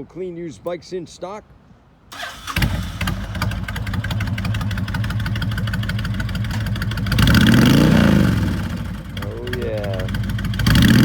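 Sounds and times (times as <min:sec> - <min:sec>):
motorcycle engine idling and revving: 0:02.3 - 0:11.0.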